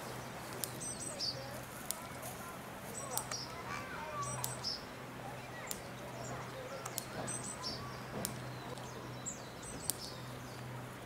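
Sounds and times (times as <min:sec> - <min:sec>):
small birds chirping: 0:00.0 - 0:11.0
faint sharp clicks: 0:00.5 - 0:00.8, 0:03.1 - 0:03.6, 0:04.3 - 0:04.7, 0:05.6 - 0:05.9, 0:06.8 - 0:07.2, 0:09.8 - 0:10.7.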